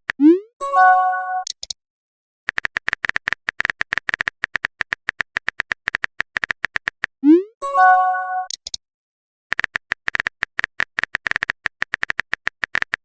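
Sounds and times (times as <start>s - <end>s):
message sent chime: 0.6s - 1.5s, 7.4s - 8.5s
phone keyboard typing clicks: 2.5s - 7.1s, 9.5s - 13.0s.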